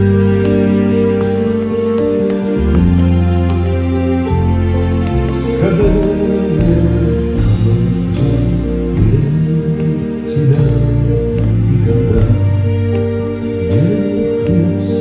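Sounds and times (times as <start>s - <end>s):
bass line: 0.0s - 15.0s
long held notes: 0.0s - 15.0s
plucked guitar: 0.0s - 15.0s.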